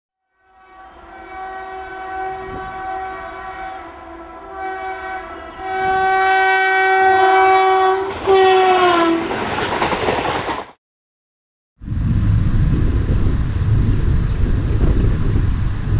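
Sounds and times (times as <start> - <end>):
locomotive horn blasts: 0.3 - 9.4
rush of passing train: 0.4 - 10.8, 11.9 - 15.9.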